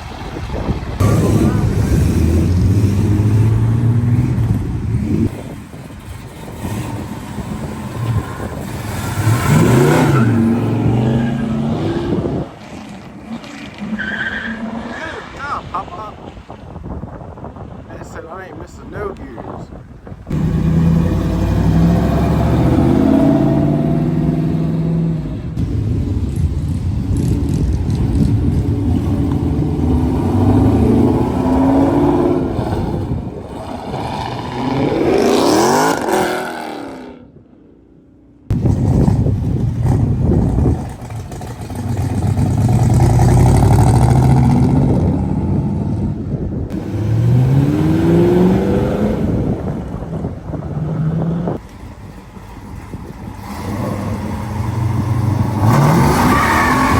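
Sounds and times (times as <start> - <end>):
car engine revving: 0.0 - 16.4, 20.2 - 37.3, 38.5 - 56.9.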